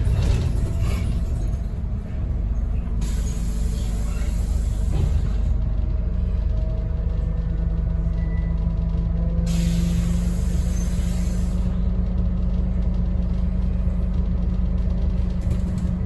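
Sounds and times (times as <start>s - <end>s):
bus diesel engine drone: 0.0s - 16.0s
road rumble: 0.0s - 16.0s.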